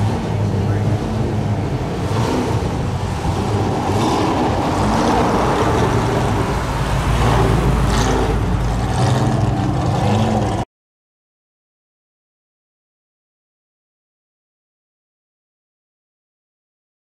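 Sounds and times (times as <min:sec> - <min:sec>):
pickup truck engine passing: 0:00.0 - 0:10.6.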